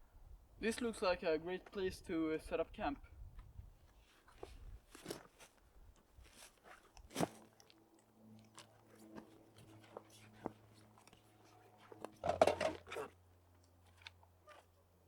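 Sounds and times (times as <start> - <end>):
dry twigs and leaves crunching: 3.9 - 13.1.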